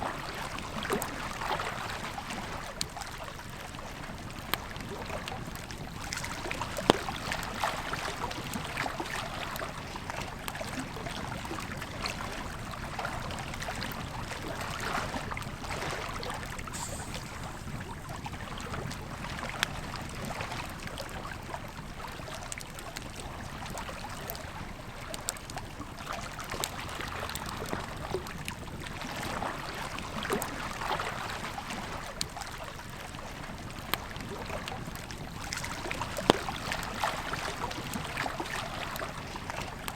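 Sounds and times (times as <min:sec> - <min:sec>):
river flowing: 0:15.7 - 0:19.4
campfire crackling and popping: 0:16.6 - 0:19.8.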